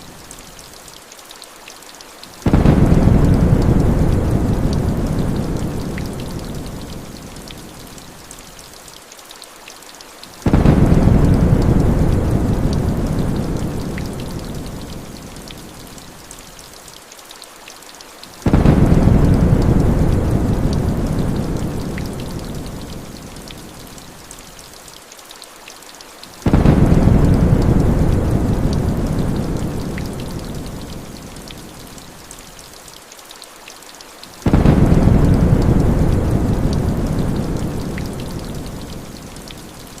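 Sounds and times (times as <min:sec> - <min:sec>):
heavy rain: 0:00.0 - 0:40.0
thunder rumbling: 0:02.4 - 0:07.0, 0:10.5 - 0:14.9, 0:18.5 - 0:22.9, 0:26.4 - 0:31.0, 0:34.4 - 0:39.1.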